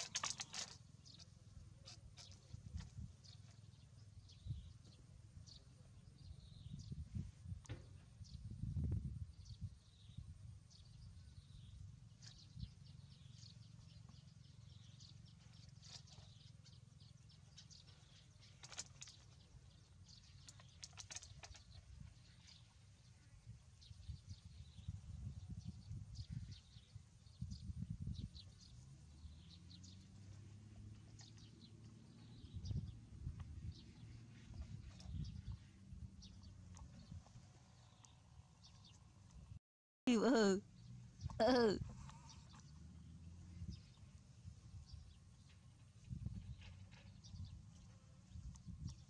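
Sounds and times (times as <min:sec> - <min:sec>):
faint high bird chirps: 0:00.0 - 0:39.0.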